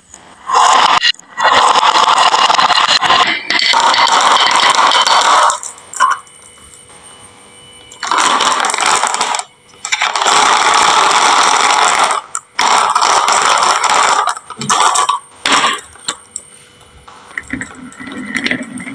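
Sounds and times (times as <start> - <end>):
marbles rattling down wooden run: 1.4 - 5.8.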